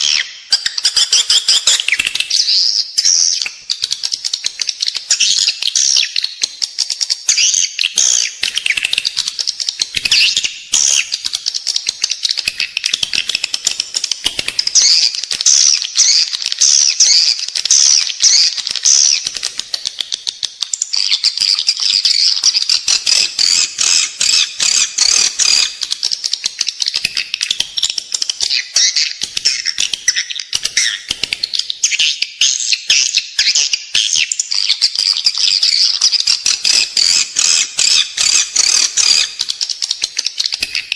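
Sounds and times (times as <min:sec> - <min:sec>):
swiftlets chirping and twittering: 0:00.0 - 0:40.9
rapid bird clicks: 0:03.4 - 0:32.0, 0:34.8 - 0:40.9.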